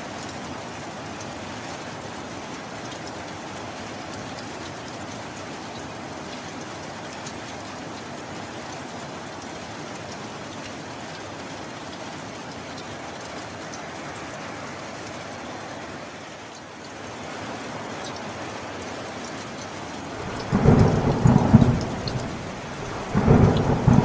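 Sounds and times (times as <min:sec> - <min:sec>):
steady rain falling: 0:00.0 - 0:24.0
raindrops ticking: 0:02.7 - 0:14.4, 0:18.0 - 0:24.0.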